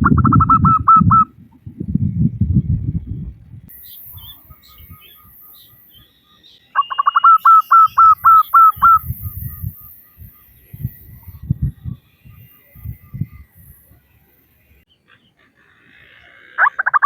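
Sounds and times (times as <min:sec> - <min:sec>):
dove calling: 0:00.0 - 0:02.8, 0:03.7 - 0:17.0.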